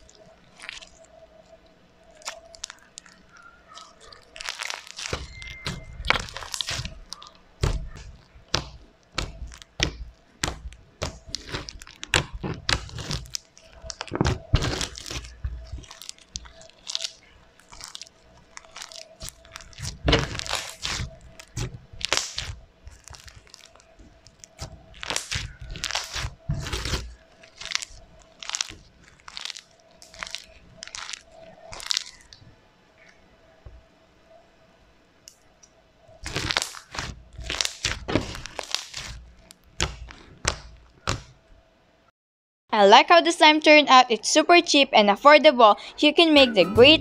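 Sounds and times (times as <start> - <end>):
foam-bead slime crunching: 0.0 - 32.4, 36.2 - 41.4.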